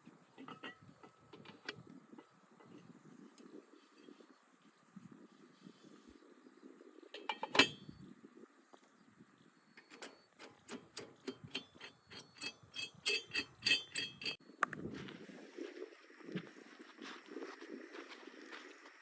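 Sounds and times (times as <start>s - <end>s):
sharp metallic clinks: 9.8s - 14.4s.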